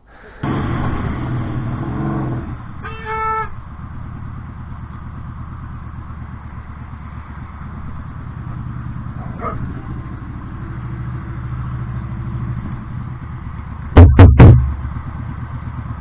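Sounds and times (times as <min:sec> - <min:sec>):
motorcycle engine running: 0:00.4 - 0:16.0
loud sharp bursts: 0:14.0 - 0:14.9.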